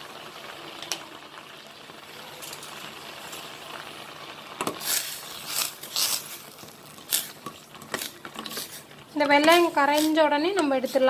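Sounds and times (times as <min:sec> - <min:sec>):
pot simmering with hiss: 0:00.0 - 0:11.0
spoon stirring and scraping pot: 0:04.6 - 0:11.0.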